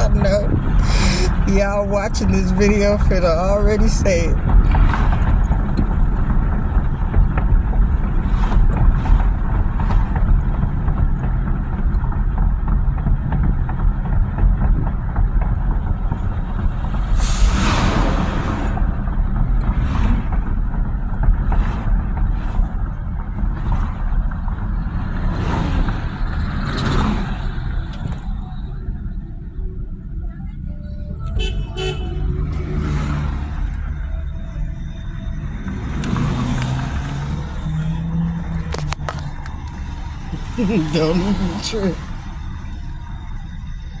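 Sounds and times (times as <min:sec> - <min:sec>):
vehicle road and engine rumble: 0:00.0 - 0:44.0.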